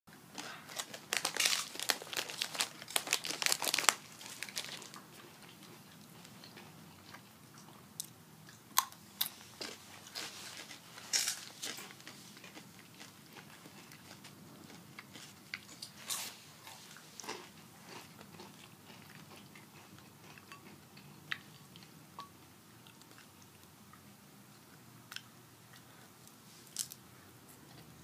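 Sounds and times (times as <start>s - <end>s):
crunching tortilla chips: 0.4s - 6.7s, 9.2s - 20.7s, 26.7s - 27.0s.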